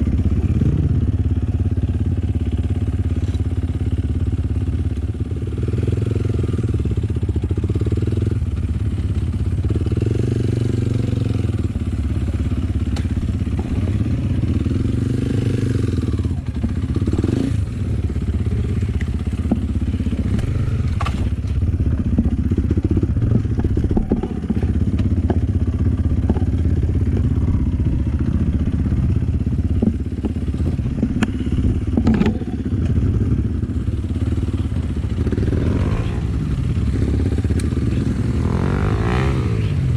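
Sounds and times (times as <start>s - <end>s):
motorcycle engine running: 0.0s - 39.9s
bike knocks and clatter: 19.3s - 27.3s, 29.6s - 33.0s.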